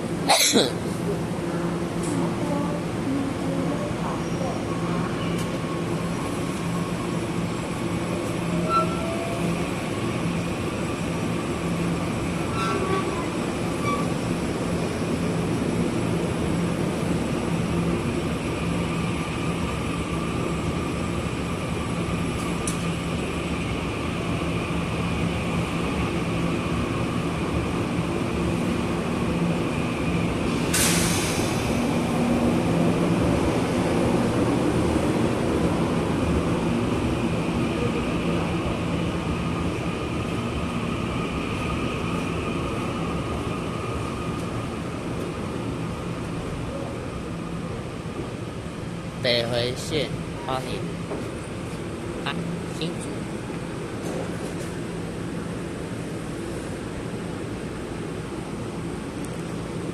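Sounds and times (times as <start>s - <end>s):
train wheels rumbling on track: 0.0s - 59.9s
brief sharp hiss: 30.6s - 31.7s.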